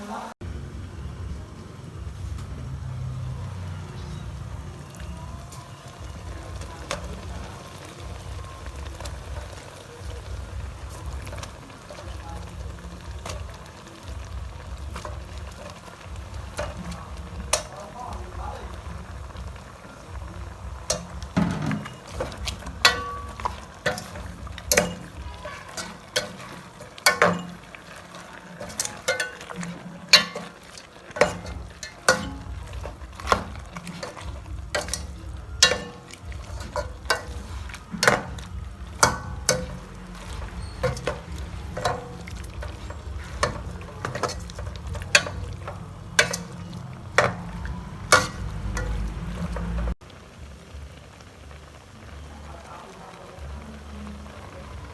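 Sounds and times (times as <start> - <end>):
low steady sizzle: 0.0 - 54.9
utensil scraping a pan: 20.9 - 50.0.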